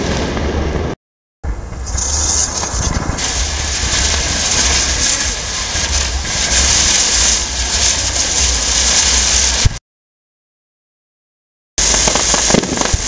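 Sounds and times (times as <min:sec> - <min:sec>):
fireworks crackling: 0:00.0 - 0:09.8, 0:11.8 - 0:13.0
low rumble: 0:00.0 - 0:09.8.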